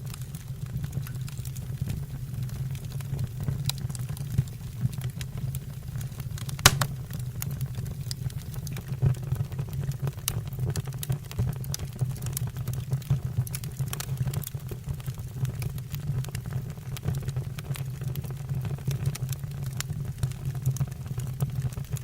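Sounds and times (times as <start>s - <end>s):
logs crackling and popping: 2.4s - 8.2s.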